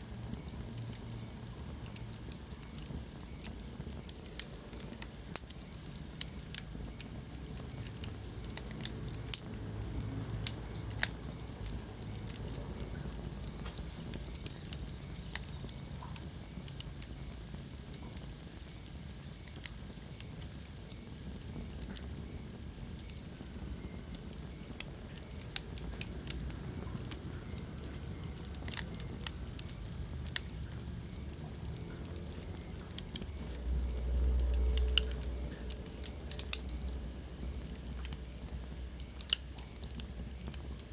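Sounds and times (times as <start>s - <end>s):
low rumble of flames: 0.0s - 40.9s
wood fire crackling and popping: 0.0s - 40.9s.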